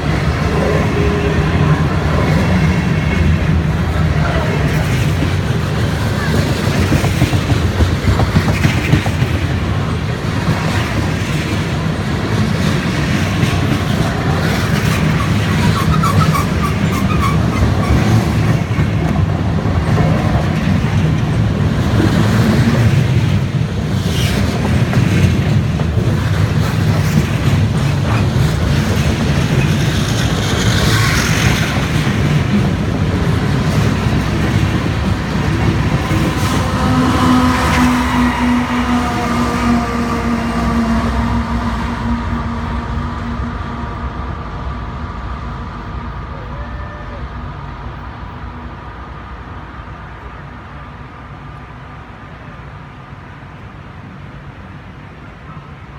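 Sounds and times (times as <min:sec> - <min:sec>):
clickety-clack over rail joints: 0:00.0 - 0:46.2
train wheels rumbling on rails: 0:00.0 - 0:55.9.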